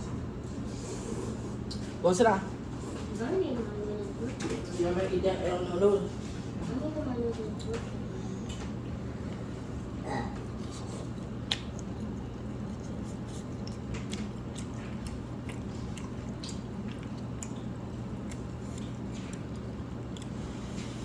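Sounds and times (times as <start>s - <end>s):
steady low hum: 0.0s - 21.0s
person chewing noodles: 8.5s - 21.0s.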